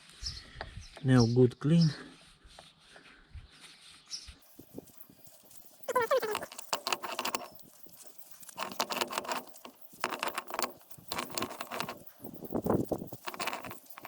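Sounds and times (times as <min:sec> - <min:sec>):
scratchy scrubbing of metal hub: 0:04.4 - 0:14.0.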